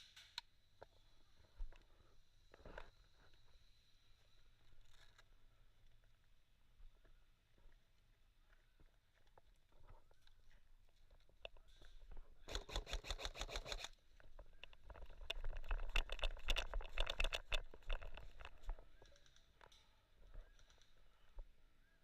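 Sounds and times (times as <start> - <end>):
airsoft rifle firing bursts: 12.5 - 13.9.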